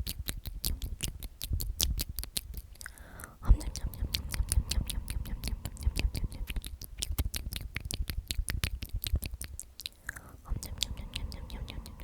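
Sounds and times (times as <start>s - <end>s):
low handling rumble: 3.4s - 7.2s.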